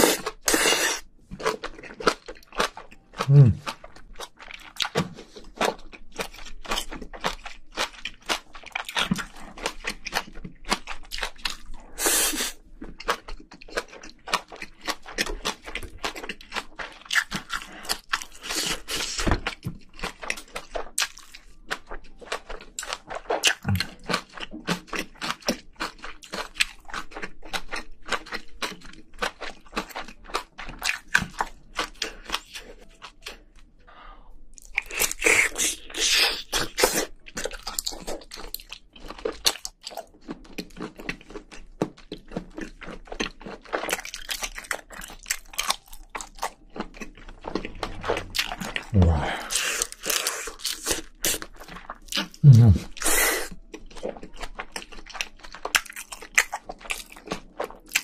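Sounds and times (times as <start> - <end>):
wet chewing and crunchy bites: 0.0 - 33.7, 34.4 - 58.0.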